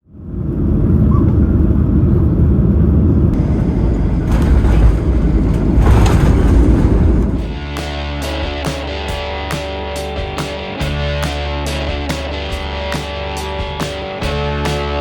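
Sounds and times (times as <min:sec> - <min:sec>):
airplane cabin rumble: 0:00.1 - 0:08.2
cabin rattling: 0:03.4 - 0:07.8.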